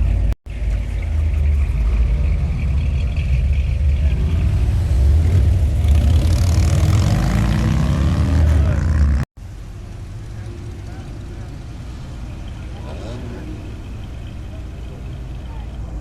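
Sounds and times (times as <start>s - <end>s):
vehicle engine revving: 0.0s - 9.3s.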